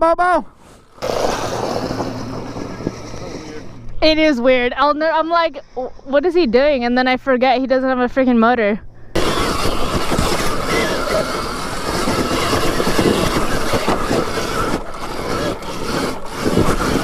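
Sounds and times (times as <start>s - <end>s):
dirt bike riding over rocks: 0.9s - 4.9s, 9.2s - 17.0s.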